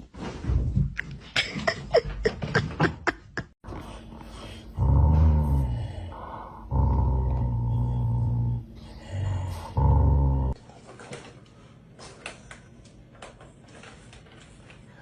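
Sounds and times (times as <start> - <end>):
dog growling: 4.7 - 10.6.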